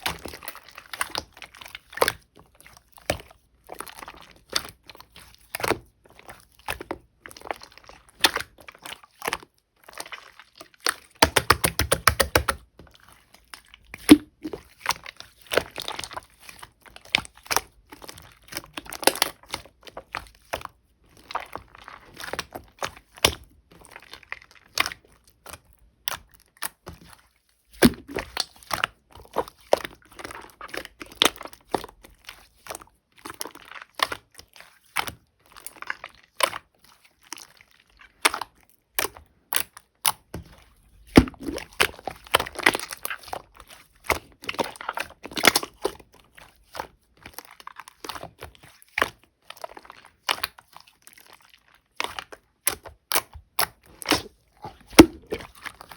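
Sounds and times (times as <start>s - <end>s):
slime clicking and popping: 11.2s - 12.6s, 41.1s - 43.1s, 52.0s - 55.9s.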